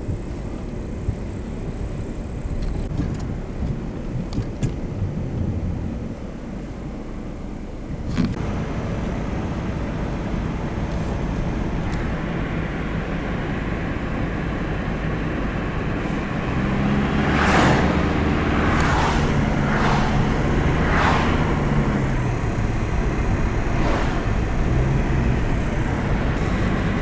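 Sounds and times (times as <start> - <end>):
low rumble: 0.0 - 8.1, 16.0 - 27.0
vehicle engine hum: 0.0 - 27.0
short hissing rushes: 17.5 - 21.9, 23.2 - 26.9.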